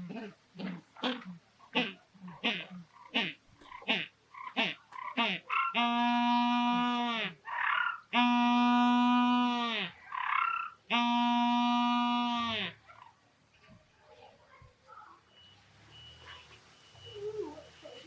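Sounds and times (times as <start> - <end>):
penguin braying call: 0.0 - 13.2.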